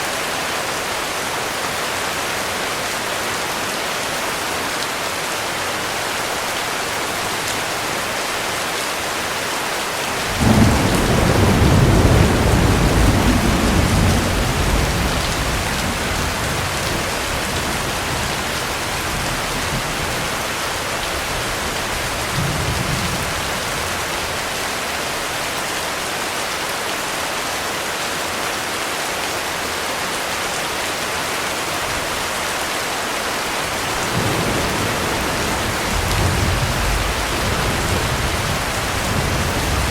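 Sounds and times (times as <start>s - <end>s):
heavy rain falling: 0.0s - 39.9s
thunderclap rumbling: 10.2s - 20.4s, 33.7s - 39.9s.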